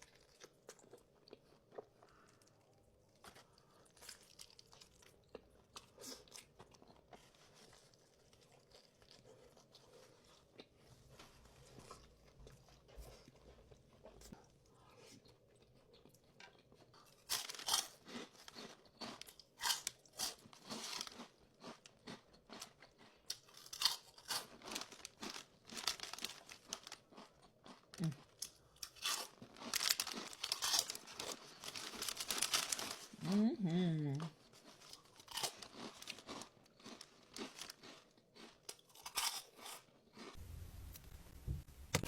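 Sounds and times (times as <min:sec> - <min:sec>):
crunchy chewing: 0:00.0 - 0:33.1, 0:34.2 - 0:40.4.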